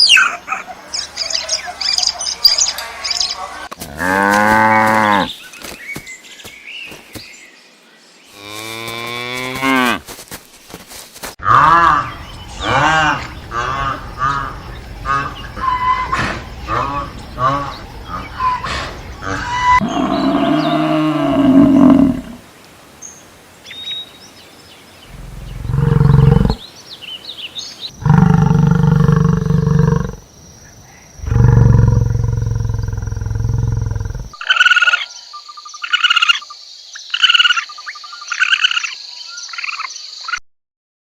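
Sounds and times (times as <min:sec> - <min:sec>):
long low animal calls: 0:11.4 - 0:22.4, 0:25.1 - 0:26.6, 0:28.0 - 0:30.3, 0:31.2 - 0:35.0.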